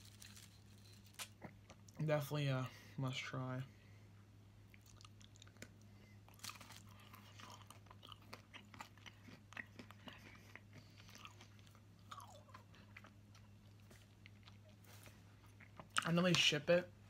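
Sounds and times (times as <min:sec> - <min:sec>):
low electrical hum: 0:00.0 - 0:17.0
chewing with wet mouth clicks: 0:04.7 - 0:05.9, 0:07.0 - 0:14.8.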